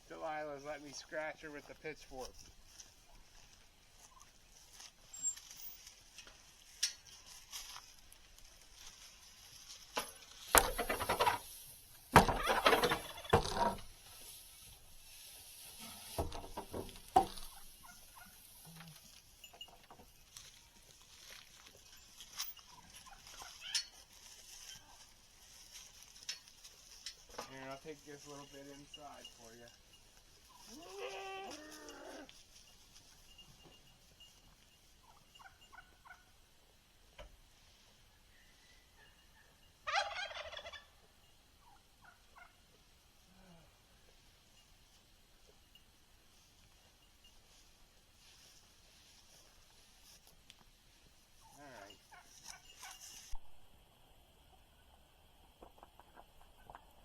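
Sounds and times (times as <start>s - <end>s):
farm animals calling: 12.2s - 14.3s, 17.1s - 19.2s, 22.0s - 25.1s, 27.6s - 32.6s, 35.0s - 36.4s, 38.3s - 43.7s, 51.4s - 53.3s
turkey gobbling: 12.3s - 13.5s, 35.0s - 36.3s, 39.0s - 41.0s, 41.6s - 42.6s.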